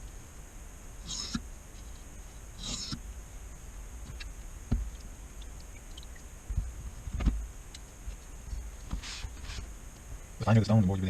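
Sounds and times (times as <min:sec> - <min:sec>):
faint ticks: 0:04.1 - 0:06.7.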